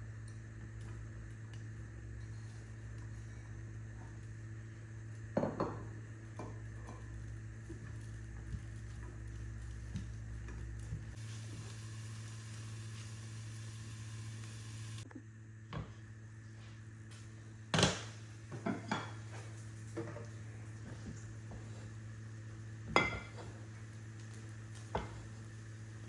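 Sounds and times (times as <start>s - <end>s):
low steady hum: 0.0s - 26.0s
steady hiss: 11.1s - 15.0s
pots and dishes clinking: 22.9s - 23.6s.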